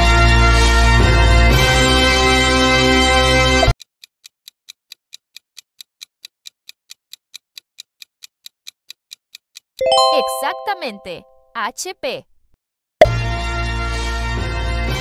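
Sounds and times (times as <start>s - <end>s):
music: 0.0s - 3.7s, 9.8s - 11.4s, 13.1s - 15.0s
bright multi-tone chime: 9.8s - 11.0s
countdown timer ticking: 9.8s - 11.6s.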